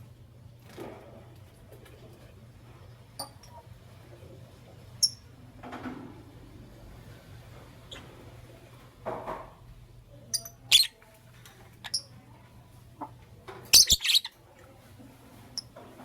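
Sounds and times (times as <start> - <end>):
lovebirds chirping: 10.3 - 11.0, 13.7 - 14.4.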